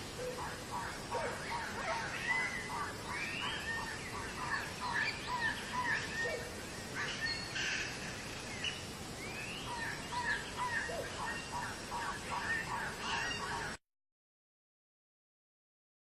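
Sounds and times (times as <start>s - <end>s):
birds chirping in chorus: 0.0s - 13.8s.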